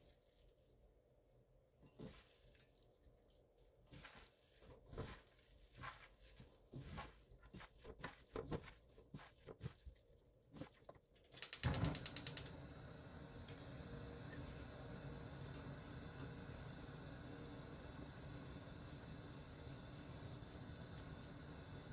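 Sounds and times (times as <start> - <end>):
kitchen knocks and clicks: 11.3 - 12.5
gas stove igniter clicking: 11.4 - 12.6
gas burner hissing: 11.4 - 21.9.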